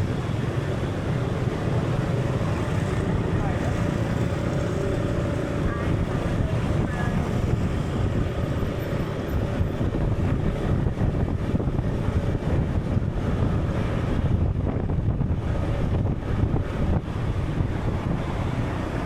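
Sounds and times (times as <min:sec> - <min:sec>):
sea rumbling: 0:00.0 - 0:19.0
wind: 0:00.0 - 0:19.0.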